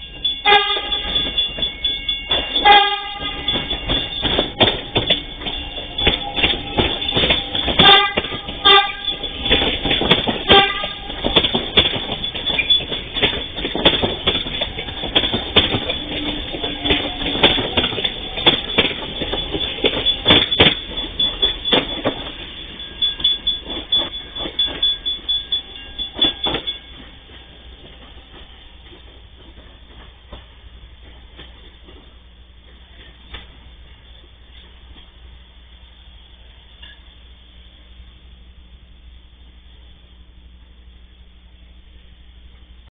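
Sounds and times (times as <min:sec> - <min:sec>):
train wheels clattering over joints: 0:00.0 - 0:35.2
train horn: 0:00.4 - 0:01.5, 0:02.5 - 0:03.8, 0:07.6 - 0:09.6, 0:10.3 - 0:11.3.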